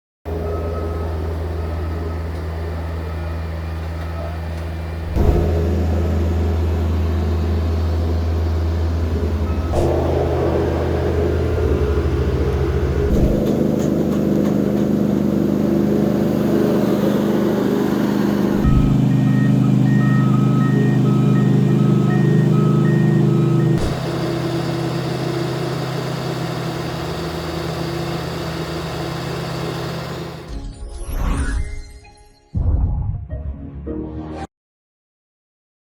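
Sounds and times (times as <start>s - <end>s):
diesel engine droning: 0.3s - 30.5s
backup alarm beeping: 17.4s - 27.6s.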